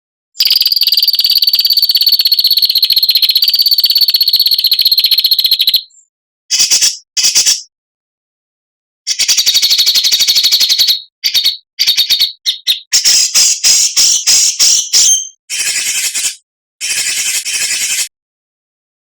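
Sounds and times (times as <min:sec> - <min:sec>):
bird rattling trill: 0:00.4 - 0:05.9, 0:09.1 - 0:18.1
songbird rasping calls: 0:09.1 - 0:16.4.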